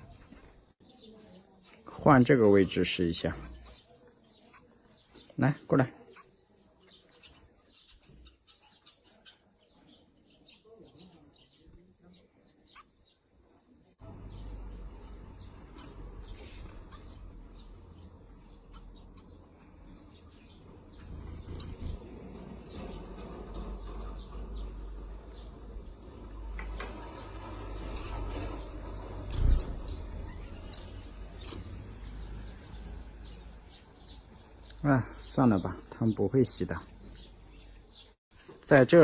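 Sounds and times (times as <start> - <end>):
insects chirring: 0.0 - 39.0
small birds chirping: 0.0 - 39.0
low rumble: 20.6 - 33.6.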